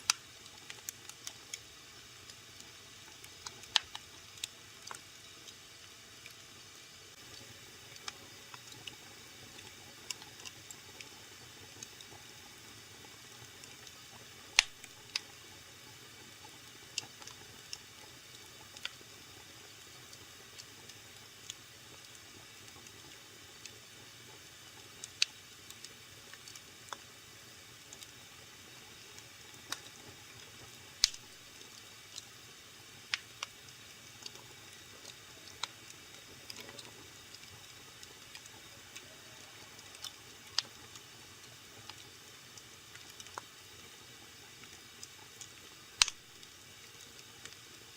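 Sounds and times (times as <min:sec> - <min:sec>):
wood fire crackling and hissing: 0:00.0 - 0:47.9.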